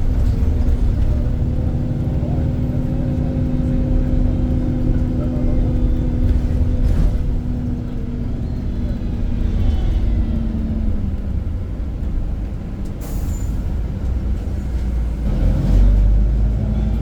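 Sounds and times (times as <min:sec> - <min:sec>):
bus diesel engine running: 0:00.0 - 0:17.0.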